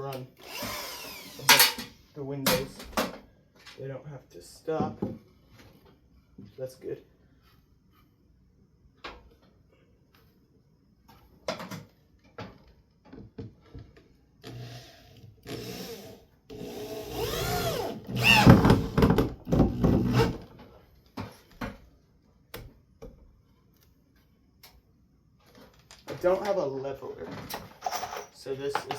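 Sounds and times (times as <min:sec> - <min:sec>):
electric drill driving a screw: 0:00.4 - 0:01.9, 0:14.4 - 0:19.0.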